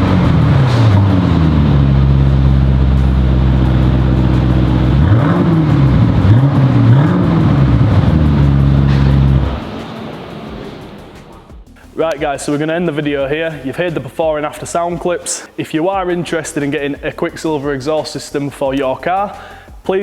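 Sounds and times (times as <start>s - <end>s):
car engine idling and revving: 0.0s - 12.0s.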